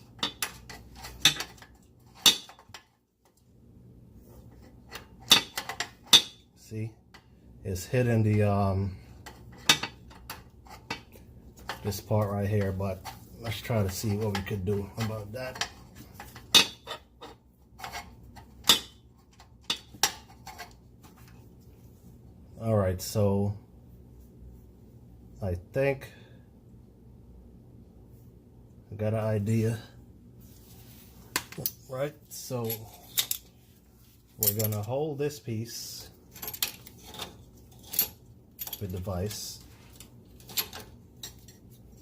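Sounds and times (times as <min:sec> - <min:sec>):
metal pipe clanking: 0:12.6 - 0:19.0.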